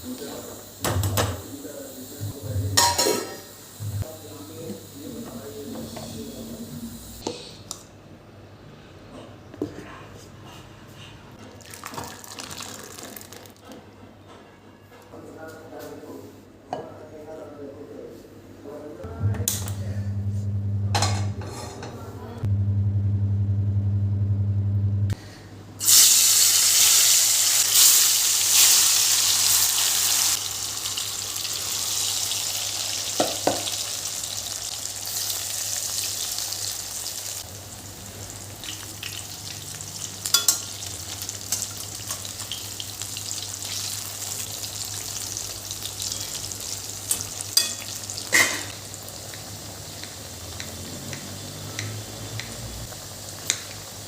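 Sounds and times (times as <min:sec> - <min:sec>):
steady low hum: 0:19.0 - 0:25.2
food sizzling in hot oil: 0:25.8 - 0:54.0.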